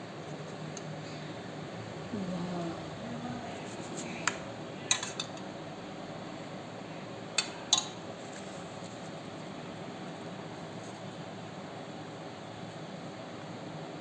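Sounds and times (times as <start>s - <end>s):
utensils clinking against dishes: 4.9s - 5.5s.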